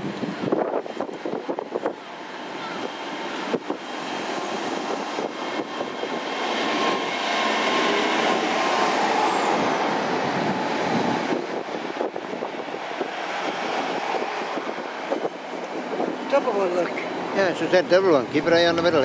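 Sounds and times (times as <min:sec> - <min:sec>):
train running noise: 0:00.0 - 0:19.0
high whine rising in pitch: 0:01.8 - 0:15.5.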